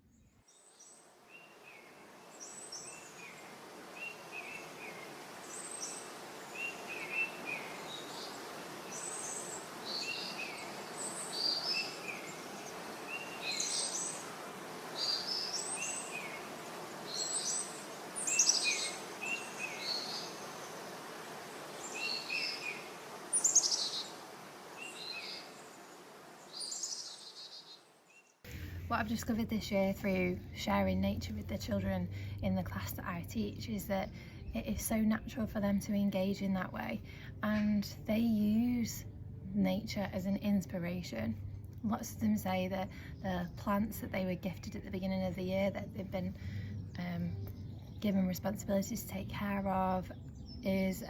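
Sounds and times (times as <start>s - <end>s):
birds singing and chirping: 0.1s - 28.8s
steady background hiss: 0.2s - 46.4s.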